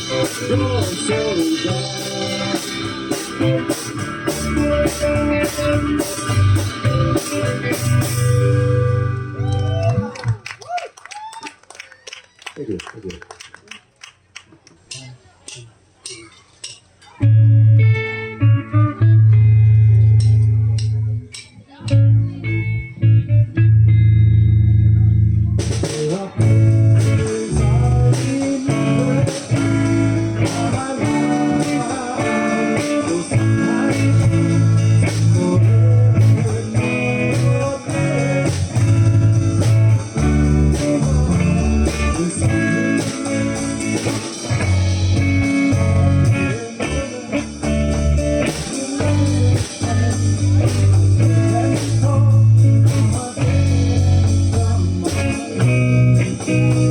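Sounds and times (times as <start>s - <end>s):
drums playing steady beat: 0.0s - 9.1s, 25.6s - 56.9s
bass guitar: 0.0s - 10.8s, 14.2s - 56.9s
electric guitar: 0.0s - 10.8s, 17.1s - 56.9s.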